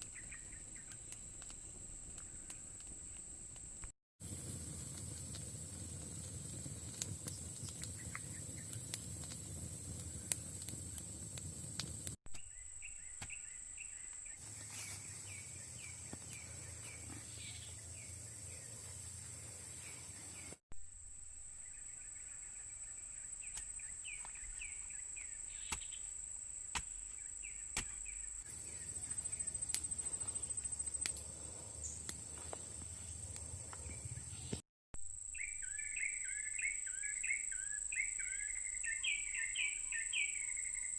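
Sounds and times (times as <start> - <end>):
birds chirping: 0.0 - 2.8, 12.4 - 20.6, 21.6 - 26.2, 27.0 - 34.6, 35.4 - 40.9.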